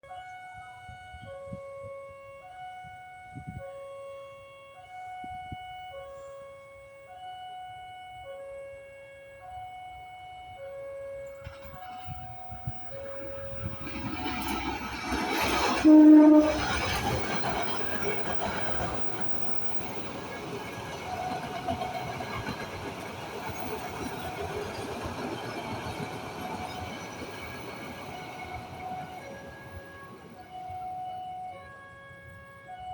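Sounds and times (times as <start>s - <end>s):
two-tone level crossing alarm: 0.2s - 32.9s
train wheels clattering on rails: 11.3s - 30.5s.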